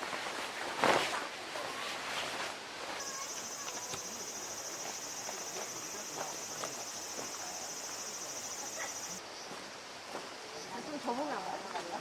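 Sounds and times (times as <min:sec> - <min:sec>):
insect trilling: 0:03.0 - 0:09.2.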